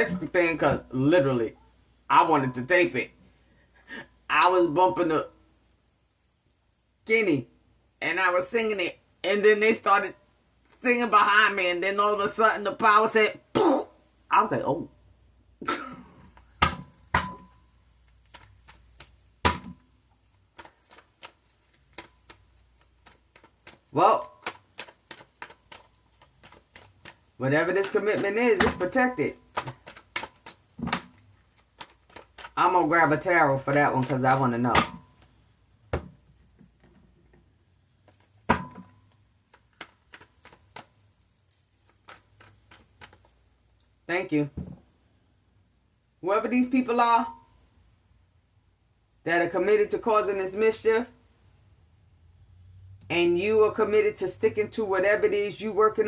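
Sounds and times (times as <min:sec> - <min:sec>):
cards shuffling on a table: 0:20.3 - 0:35.3, 0:37.9 - 0:43.4.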